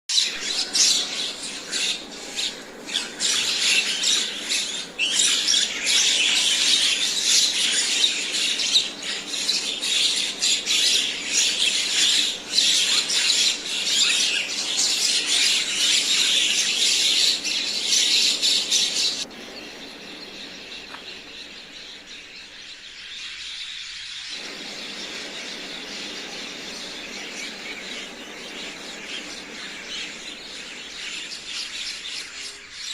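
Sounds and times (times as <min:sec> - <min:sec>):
faint bird chirping: 0:00.1 - 0:32.9
mynas squawking and chattering: 0:24.3 - 0:32.9.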